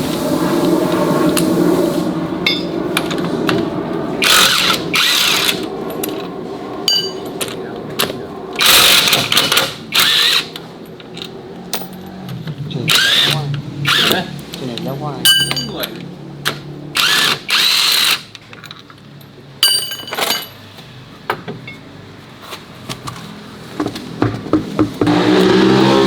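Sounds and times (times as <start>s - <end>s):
hand-held power tool running: 4.2s - 5.6s, 17.0s - 18.2s.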